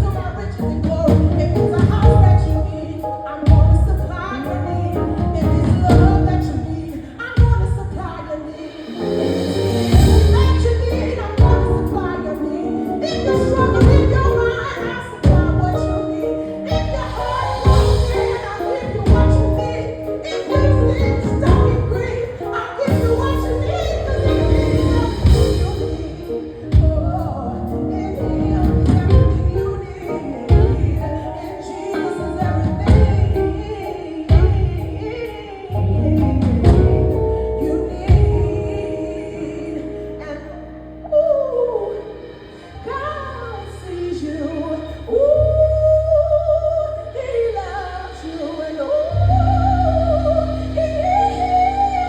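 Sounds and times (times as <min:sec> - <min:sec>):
bass: 0:00.0 - 0:52.0
steady drum beat: 0:03.5 - 0:38.9
deep sustained bass notes: 0:09.5 - 0:12.0, 0:48.9 - 0:52.0.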